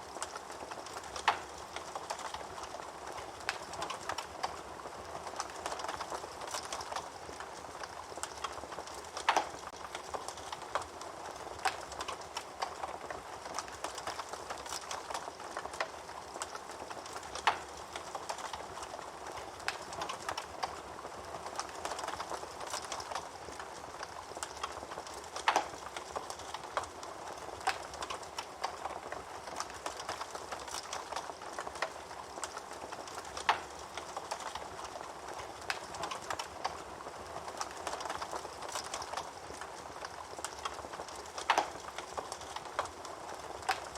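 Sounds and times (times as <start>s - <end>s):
wood fire crackling: 0.0s - 43.9s
fire sharp pops: 5.5s - 20.8s, 21.6s - 36.8s.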